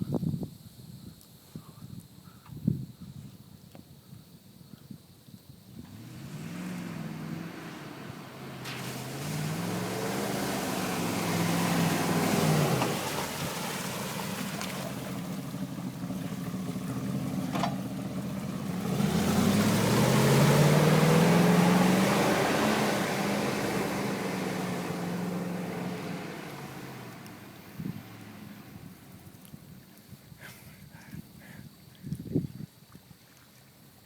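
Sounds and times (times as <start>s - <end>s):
engine revving: 5.8s - 29.3s
water spray rushing: 6.2s - 29.2s.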